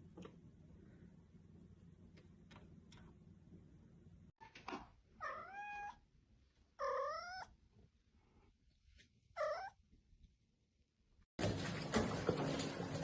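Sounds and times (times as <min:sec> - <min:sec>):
cat meowing: 0:05.2 - 0:06.0, 0:06.8 - 0:07.6, 0:09.4 - 0:09.8.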